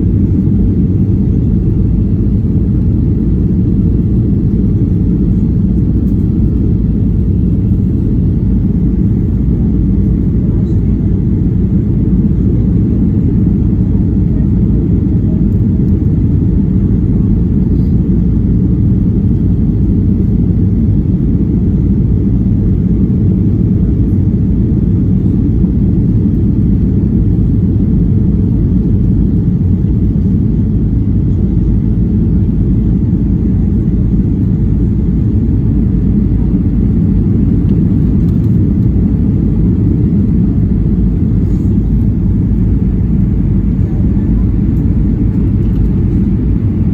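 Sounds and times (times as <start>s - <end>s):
airliner cabin engine rumble: 0.0s - 46.9s.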